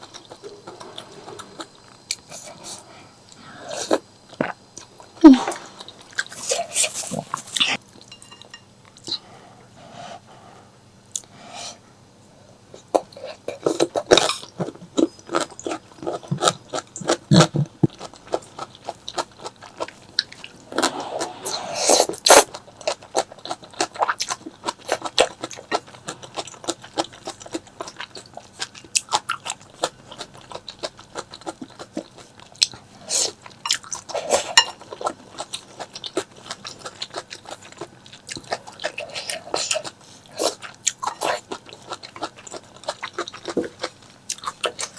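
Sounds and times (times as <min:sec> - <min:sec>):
chewing and biting food: 0:22.2 - 0:44.9.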